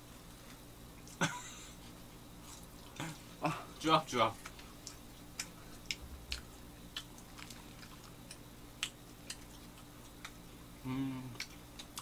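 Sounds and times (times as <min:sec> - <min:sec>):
low hum: 0:05.6 - 0:08.3
person humming: 0:10.8 - 0:11.5.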